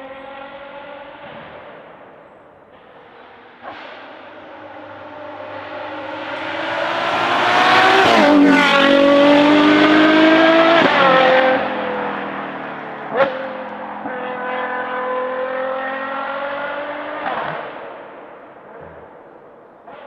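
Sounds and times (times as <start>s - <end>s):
car engine accelerating hard: 2.7s - 18.2s
engine upshifts: 2.7s - 18.4s.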